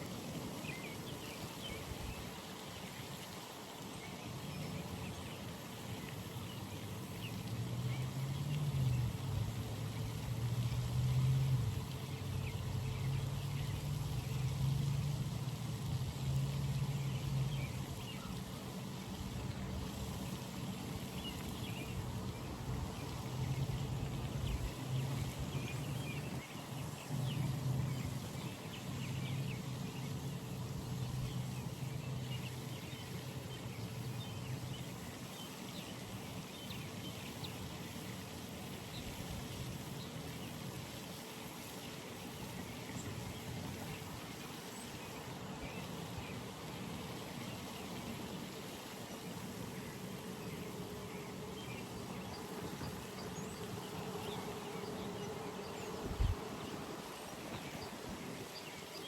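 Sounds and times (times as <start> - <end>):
distant engine drone: 6.2 - 35.2, 40.7 - 58.6.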